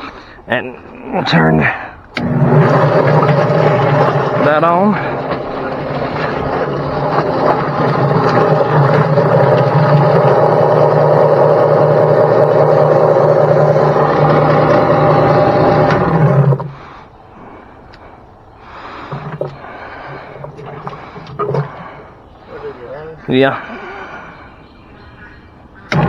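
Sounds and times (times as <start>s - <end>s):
chicken plucker machine drone: 2.2s - 17.0s.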